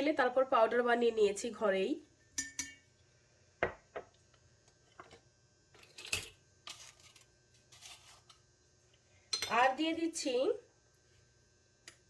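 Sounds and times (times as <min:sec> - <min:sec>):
spoon clinking on containers: 0:02.3 - 0:02.9
spoon scraping: 0:05.8 - 0:08.4.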